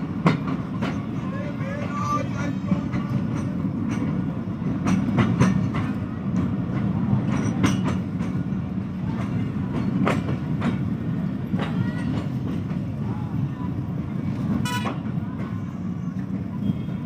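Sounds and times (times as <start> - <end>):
wheels clacking over rail joints: 0.0 - 13.1
train rumbling on track: 0.0 - 17.0.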